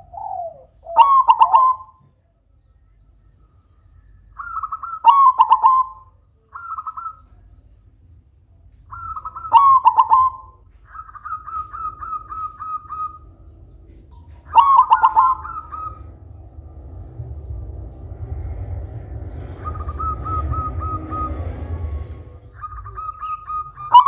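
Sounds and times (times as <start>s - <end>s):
dove cooing in trilled phrases: 0.0s - 1.9s, 4.4s - 7.2s, 8.9s - 13.2s, 14.4s - 16.0s.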